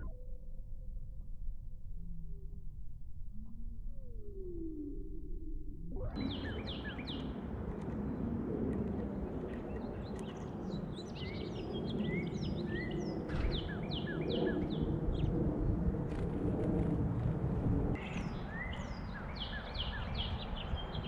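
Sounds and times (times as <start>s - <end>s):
songbirds chirping: 6.2s - 15.4s, 18.0s - 21.0s.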